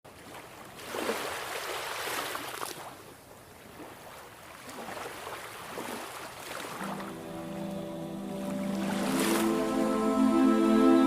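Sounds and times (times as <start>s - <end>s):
ocean waves washing in: 4.8s - 11.0s.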